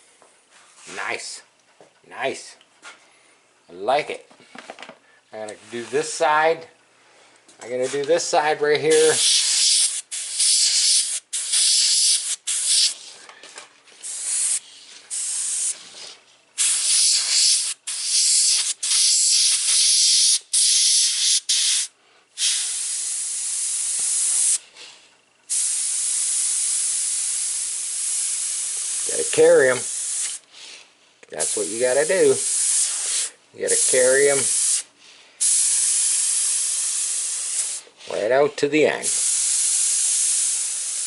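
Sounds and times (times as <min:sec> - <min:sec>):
airbrush spraying paint: 0:08.9 - 0:13.2, 0:14.0 - 0:24.6, 0:25.5 - 0:30.8, 0:31.4 - 0:37.9, 0:39.0 - 0:41.0.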